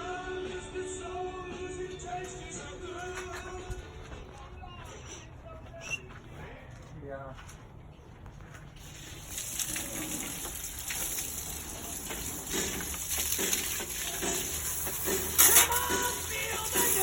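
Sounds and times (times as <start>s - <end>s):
water spraying hiss: 8.8s - 17.0s
water gushing: 8.9s - 17.0s.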